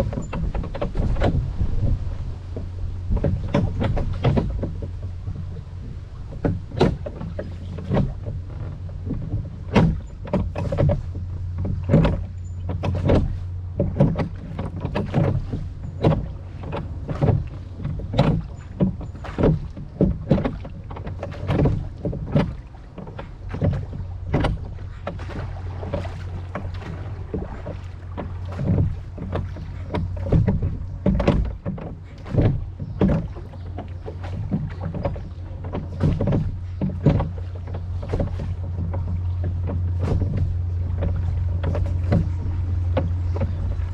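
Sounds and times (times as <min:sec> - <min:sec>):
oars knocking: 0:00.0 - 0:43.9
oars splashing in water: 0:00.0 - 0:43.9
steady low rumble: 0:00.0 - 0:43.9.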